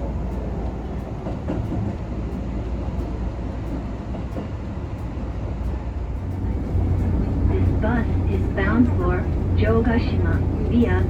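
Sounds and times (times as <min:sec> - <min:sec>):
moving vehicle rumble: 0:05.3 - 0:11.0.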